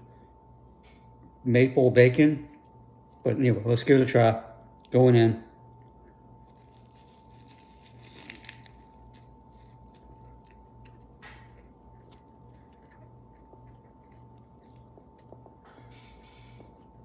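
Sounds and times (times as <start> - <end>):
low electrical hum: 0.0 - 17.0
faint chewing: 5.6 - 17.0
crunch of biting a sandwich: 5.8 - 17.0.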